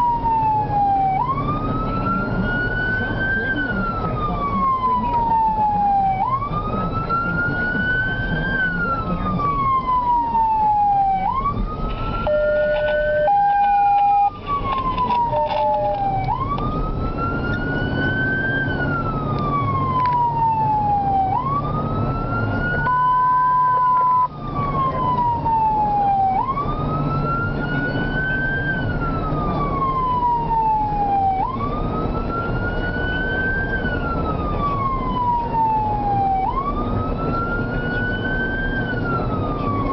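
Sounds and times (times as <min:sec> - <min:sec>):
fire engine siren wailing: 0:00.0 - 0:39.9
vehicle rumble: 0:00.0 - 0:39.9
short steady horn tone: 0:12.2 - 0:13.4.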